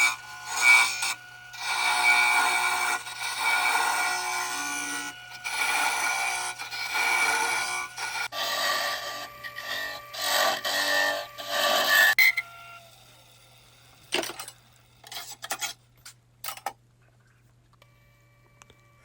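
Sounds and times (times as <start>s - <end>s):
wood lathe tool cutting wood: 0.0s - 14.2s.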